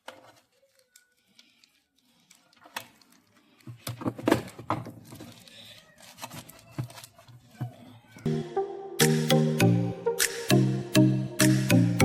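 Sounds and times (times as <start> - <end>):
plastic and tape crackling: 0.0 - 8.2.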